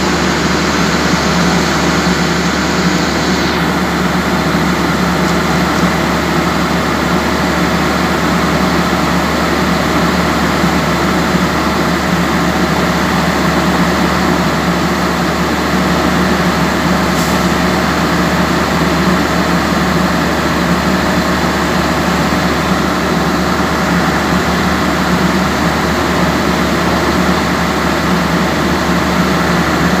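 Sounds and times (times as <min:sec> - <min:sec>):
steady hum: 0:00.0 - 0:07.0
diesel generator droning: 0:00.0 - 0:30.0.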